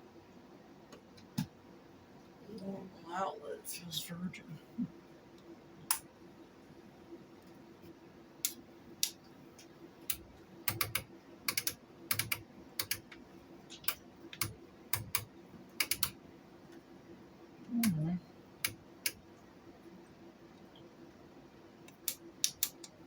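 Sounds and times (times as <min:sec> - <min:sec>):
sharp clicks of machine controls: 0:08.4 - 0:16.2, 0:21.8 - 0:23.0.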